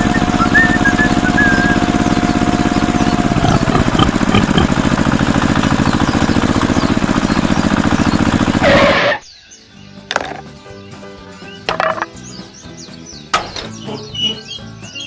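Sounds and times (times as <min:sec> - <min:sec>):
small tractor engine chugging: 0:00.0 - 0:09.1.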